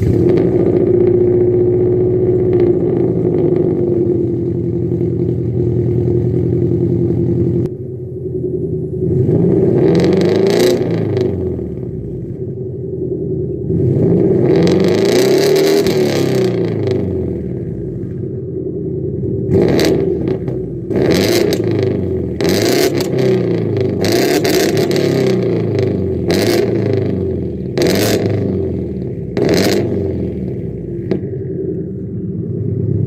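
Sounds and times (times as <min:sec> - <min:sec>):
turbocharged car engine revving: 0:00.0 - 0:33.0
sharp exhaust pop: 0:27.8 - 0:32.4.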